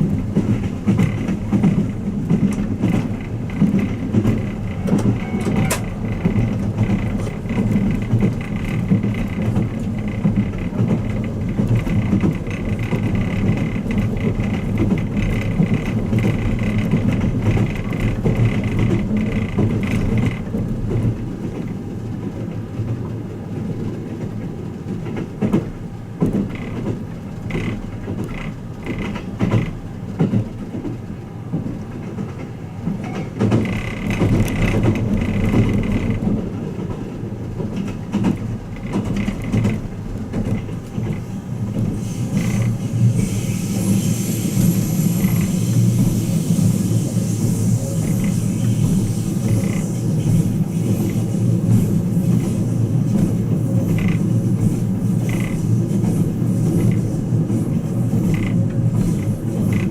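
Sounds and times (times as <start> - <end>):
train cabin rumble: 0.0 - 59.9
wheel clicks over rails: 0.2 - 21.8, 24.0 - 42.8, 48.0 - 59.9
high hiss: 42.2 - 51.4.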